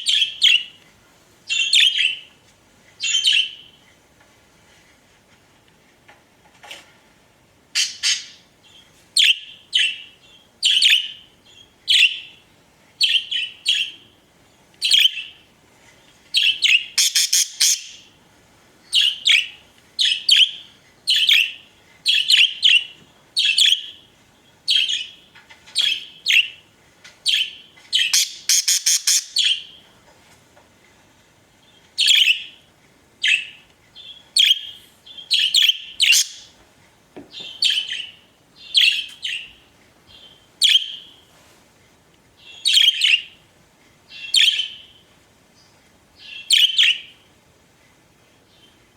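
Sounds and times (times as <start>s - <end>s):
budgerigars chirping: 7.8s - 8.4s, 16.4s - 18.1s, 18.9s - 24.0s, 24.7s - 25.2s, 27.3s - 29.8s, 33.2s - 36.5s, 37.4s - 39.6s, 40.2s - 41.1s, 42.5s - 43.4s, 44.1s - 45.0s, 46.2s - 47.1s.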